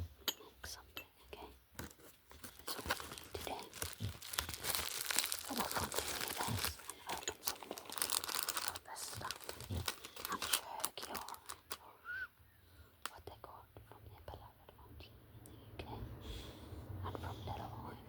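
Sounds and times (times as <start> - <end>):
packaging crinkling and tearing: 1.8 - 11.8.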